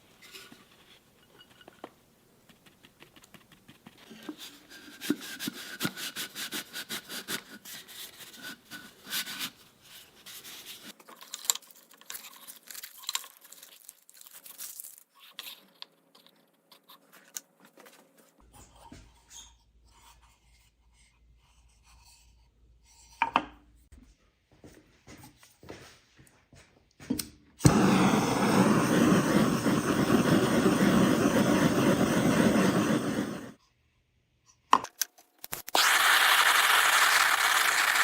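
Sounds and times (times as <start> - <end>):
light scratches and taps: 1.7 - 5.2.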